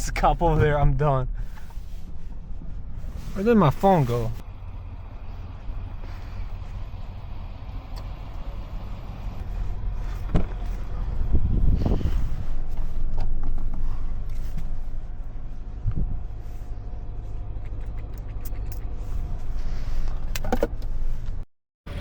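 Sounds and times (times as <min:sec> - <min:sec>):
engine and road rumble: 0:00.0 - 0:22.0
knocks and clicks in cab: 0:20.3 - 0:20.9.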